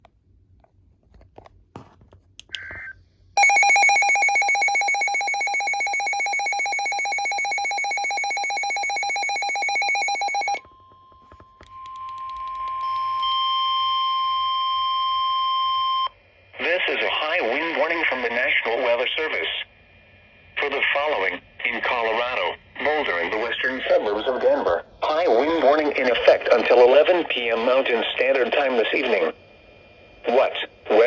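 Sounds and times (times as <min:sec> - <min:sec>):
steady warning alarm tone: 0:03.4 - 0:19.6.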